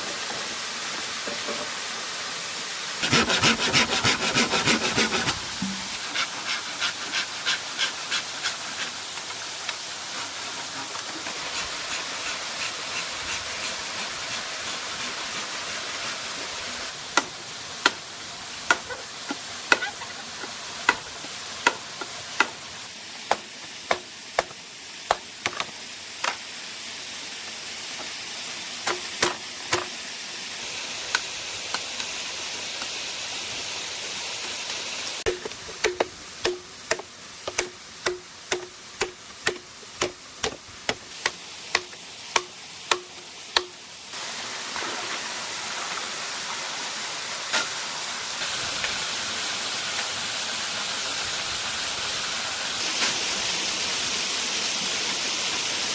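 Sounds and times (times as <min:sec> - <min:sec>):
rushing water: 0:01.8 - 0:55.9
hand saw cutting bamboo: 0:03.0 - 0:22.6, 0:35.3 - 0:43.8.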